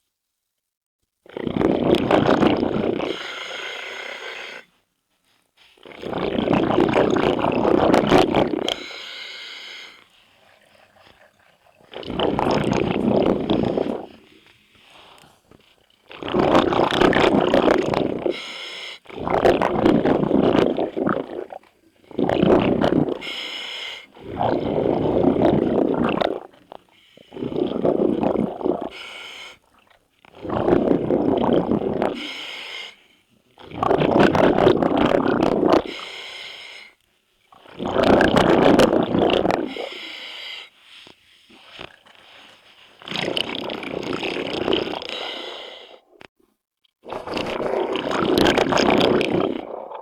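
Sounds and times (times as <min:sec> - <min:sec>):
bubbling exhalations: 0:01.3 - 0:04.8, 0:05.6 - 0:32.6, 0:33.6 - 0:36.1, 0:37.5 - 0:40.4, 0:41.0 - 0:46.3, 0:47.0 - 0:50.0
diver breathing through regulator: 0:02.6 - 0:04.8, 0:05.6 - 0:19.2, 0:22.1 - 0:26.2, 0:26.8 - 0:29.7, 0:31.7 - 0:33.3, 0:35.7 - 0:37.0, 0:39.5 - 0:46.2.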